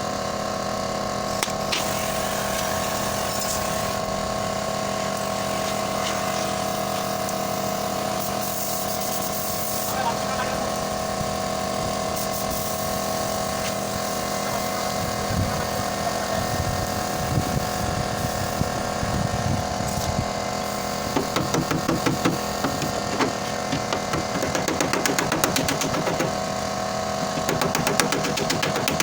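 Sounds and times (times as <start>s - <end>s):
machine hum: 0.0s - 29.0s
fast sharp knocking: 21.2s - 26.4s, 27.2s - 29.0s.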